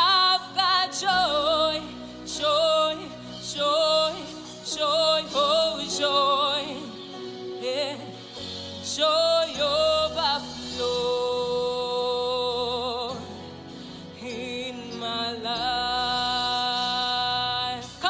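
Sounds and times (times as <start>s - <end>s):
gospel worship singing: 0.0s - 18.0s.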